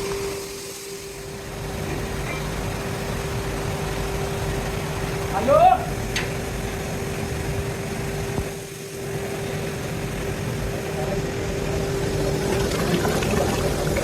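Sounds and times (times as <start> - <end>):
heavy machinery humming: 0.0 - 14.0.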